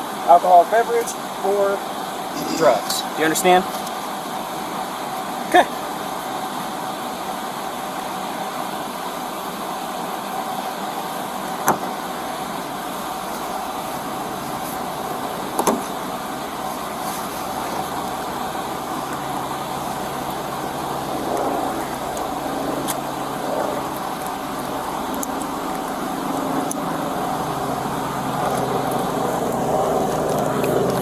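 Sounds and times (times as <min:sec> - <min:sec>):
car engine idling: 0:09.9 - 0:31.0.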